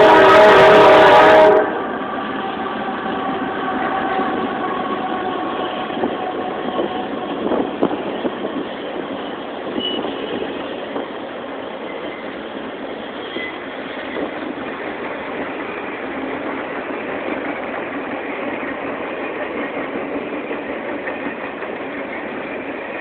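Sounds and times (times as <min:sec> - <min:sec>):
loud sustained horn tone: 0:00.0 - 0:01.8
train wheels rumbling on rails: 0:00.0 - 0:23.0.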